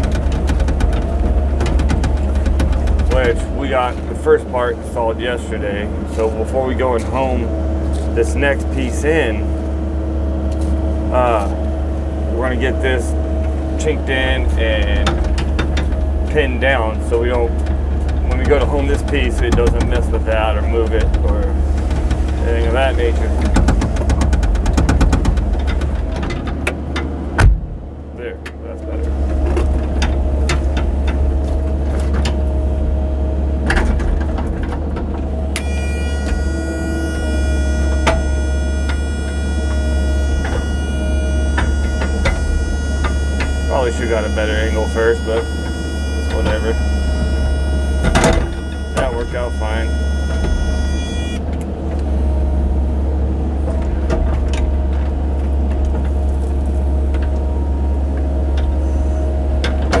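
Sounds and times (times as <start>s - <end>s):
sharp knocks and clicks: 0.0s - 3.4s, 23.3s - 27.7s, 33.7s - 43.8s
machine knocking: 0.0s - 4.2s, 14.4s - 26.6s, 35.6s - 51.4s
excavator engine droning: 0.0s - 60.0s
high whine: 35.4s - 54.6s.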